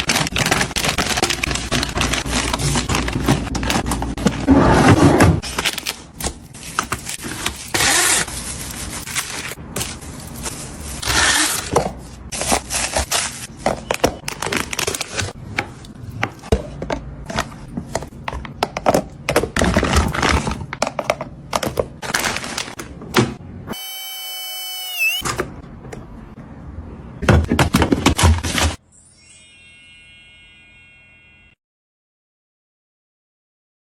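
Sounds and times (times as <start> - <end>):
objects knocking and clicking: 13.6 - 22.0.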